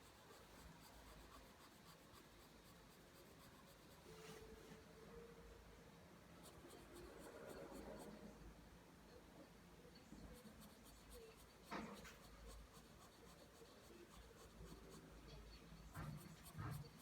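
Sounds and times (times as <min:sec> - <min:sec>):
pencil scratching on paper: 0:00.0 - 0:04.5, 0:06.4 - 0:08.2, 0:10.2 - 0:17.0.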